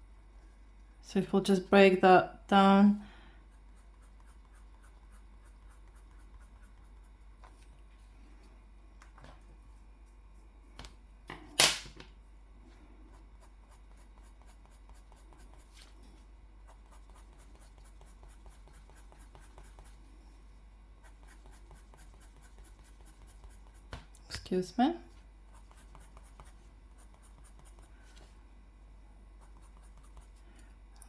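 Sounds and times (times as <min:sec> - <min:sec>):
pen strokes on paper: 0:03.6 - 0:07.3, 0:13.1 - 0:16.0, 0:16.6 - 0:20.0, 0:21.0 - 0:23.9, 0:25.5 - 0:28.3, 0:29.4 - 0:30.4.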